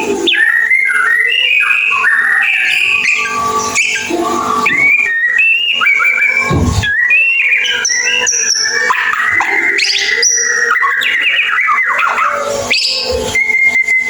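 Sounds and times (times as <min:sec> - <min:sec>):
songbird whistling and twittering: 0:00.0 - 0:14.0.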